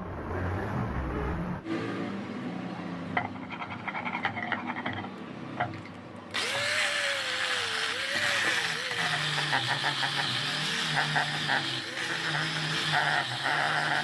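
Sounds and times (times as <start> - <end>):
workshop tool scraping and ticking: 3.2 - 5.8, 7.5 - 14.0
power tool grinding: 6.3 - 14.0.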